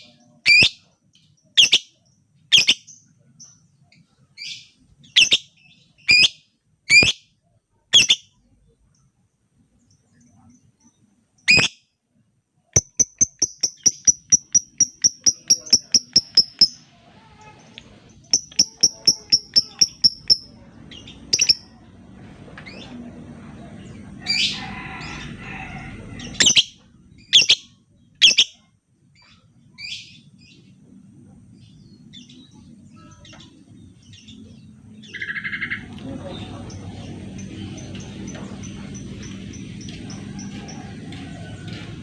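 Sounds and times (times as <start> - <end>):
lovebirds chirping and squawking: 0.0 - 3.6, 4.3 - 7.3, 7.9 - 8.4, 11.4 - 11.8, 12.8 - 21.9, 24.0 - 25.5, 26.1 - 30.7, 31.6 - 41.8.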